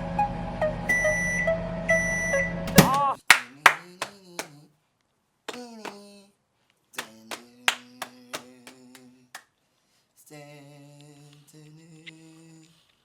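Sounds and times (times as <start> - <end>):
sharp hand claps: 2.7 - 4.6, 5.5 - 6.0, 7.0 - 9.1.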